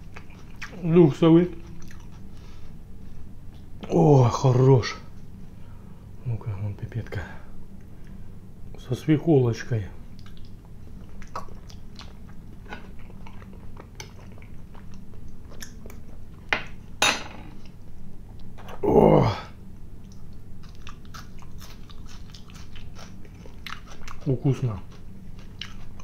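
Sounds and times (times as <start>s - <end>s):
person chewing food: 0.0s - 0.8s, 1.5s - 2.6s, 10.1s - 16.4s, 20.0s - 26.0s.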